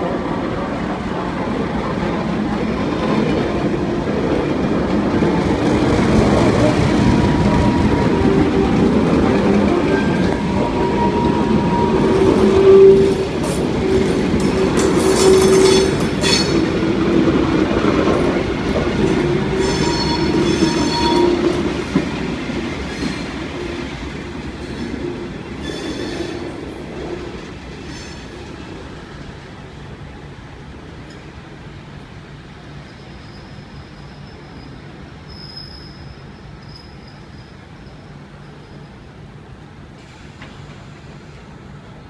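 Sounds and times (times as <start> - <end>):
train running on tracks: 0.0 - 42.0
high wheel squeal: 6.3 - 16.7, 19.2 - 21.7, 25.6 - 26.5, 32.9 - 39.0.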